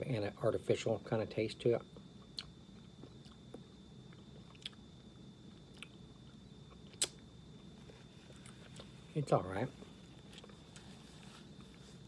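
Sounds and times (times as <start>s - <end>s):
mouth chewing gummy snack: 2.2s - 7.3s, 10.1s - 11.0s.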